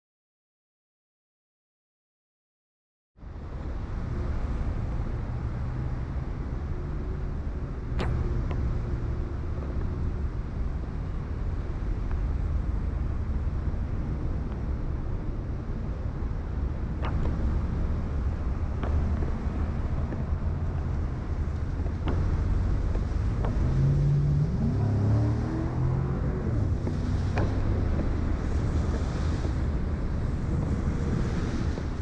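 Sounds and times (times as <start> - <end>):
traffic rumble: 3.2 - 32.0
wind: 3.2 - 32.0
vehicle engine rising in pitch: 22.2 - 28.3.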